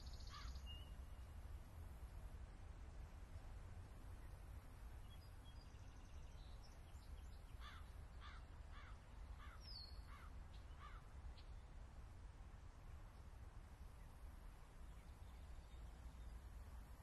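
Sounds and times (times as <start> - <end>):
faint bird calls: 0.0 - 1.2, 7.5 - 11.6
low steady hum: 0.0 - 17.0.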